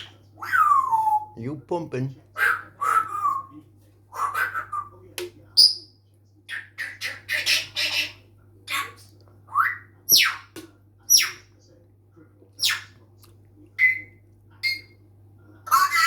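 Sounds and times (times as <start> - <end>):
faint low hum: 0.0 - 16.0
parrot squawks and whistles: 2.4 - 3.5, 13.8 - 15.0.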